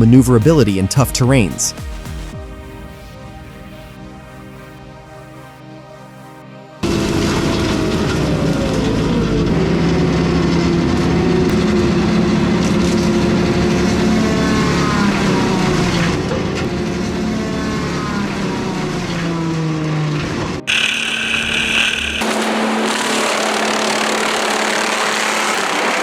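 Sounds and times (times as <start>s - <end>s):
high whining pitches: 0.0s - 25.5s
heavy machine engine droning: 6.8s - 26.0s.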